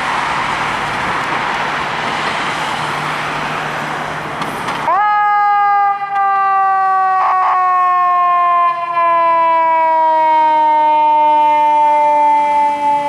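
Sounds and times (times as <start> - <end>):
mechanical siren wailing: 4.9 - 13.0.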